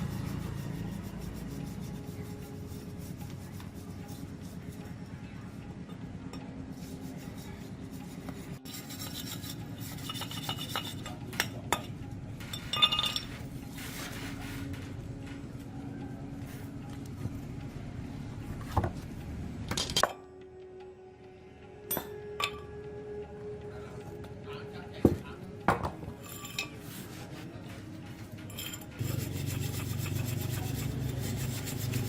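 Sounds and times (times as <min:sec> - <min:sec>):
rubbing and scraping on metal: 0:00.0 - 0:05.6, 0:06.7 - 0:15.7, 0:26.2 - 0:32.0
low machine hum: 0:00.0 - 0:26.7.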